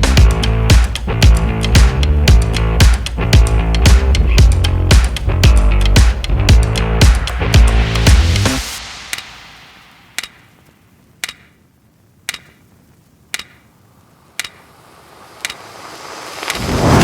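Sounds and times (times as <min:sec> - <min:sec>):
sharp clock-like ticks: 0:09.1 - 0:09.3, 0:10.1 - 0:10.5, 0:11.2 - 0:11.6, 0:12.3 - 0:12.7, 0:13.3 - 0:13.7, 0:14.3 - 0:16.6.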